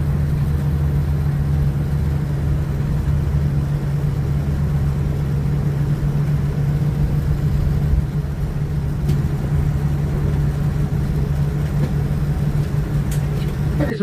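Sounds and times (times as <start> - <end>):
aircraft cabin engine rumble: 0.0 - 14.0.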